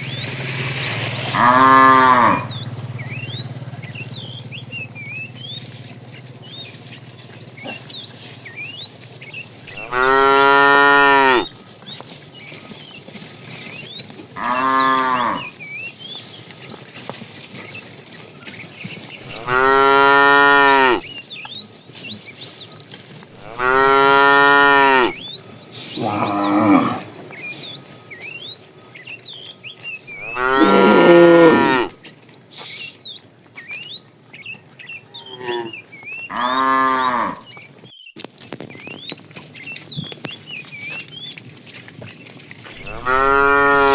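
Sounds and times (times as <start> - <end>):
cattle mooing: 1.2 - 5.6, 7.6 - 8.6, 9.6 - 11.6, 14.4 - 15.6, 19.2 - 21.1, 23.3 - 28.4, 30.1 - 32.0, 35.0 - 37.5, 42.7 - 43.9.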